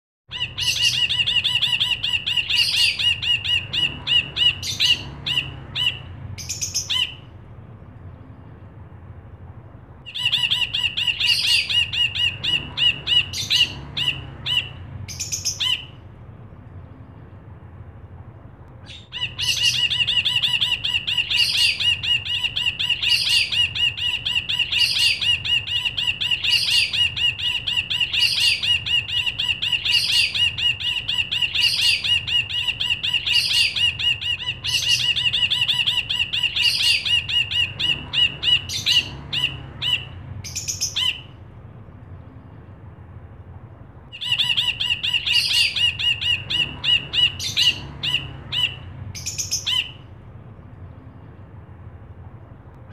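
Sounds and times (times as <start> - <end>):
bird singing chattering notes: 0.3 - 7.2, 10.1 - 16.0, 18.8 - 41.3, 44.2 - 50.0.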